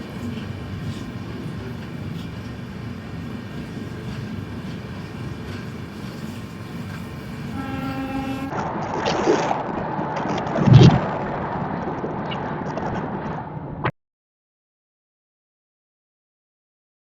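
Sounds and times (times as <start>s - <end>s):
train rumbling on track: 0.0s - 13.8s
train horn: 7.5s - 8.6s.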